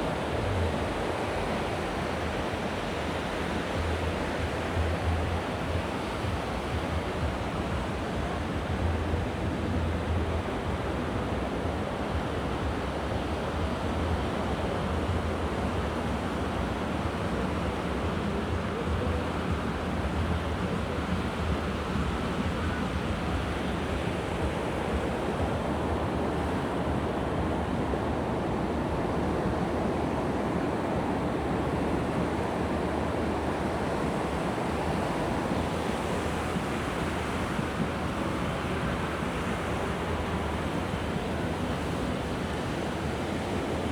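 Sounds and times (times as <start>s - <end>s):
wind rumbling on microphone: 0.0s - 43.9s.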